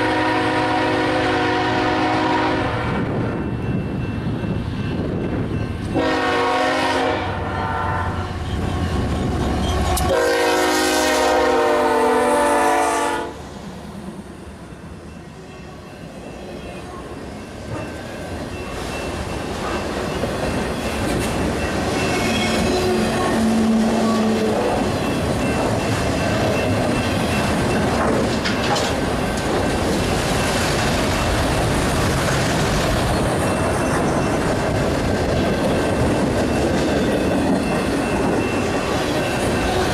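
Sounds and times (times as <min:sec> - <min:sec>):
locomotive air horn: 0:00.0 - 0:03.1, 0:06.0 - 0:09.0, 0:10.0 - 0:13.4
train wheels clickety-clack: 0:08.4 - 0:10.5, 0:16.3 - 0:39.9.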